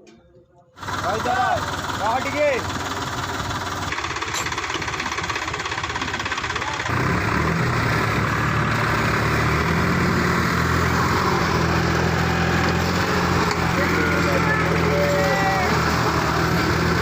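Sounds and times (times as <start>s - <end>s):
tractor diesel engine revving: 0.8s - 17.0s.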